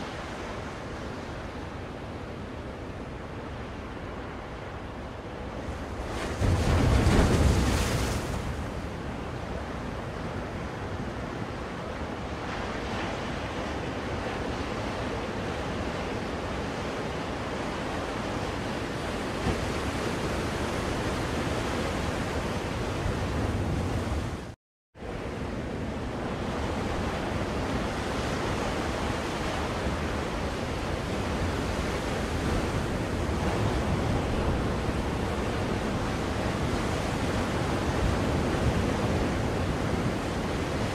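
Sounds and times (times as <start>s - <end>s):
waves washing on a shore: 0.0s - 40.9s
wave breaking: 6.0s - 8.9s.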